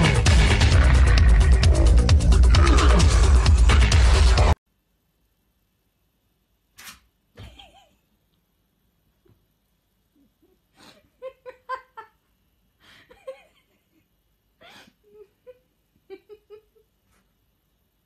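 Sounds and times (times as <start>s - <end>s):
person stifled giggling: 7.4s - 8.1s, 12.8s - 17.1s.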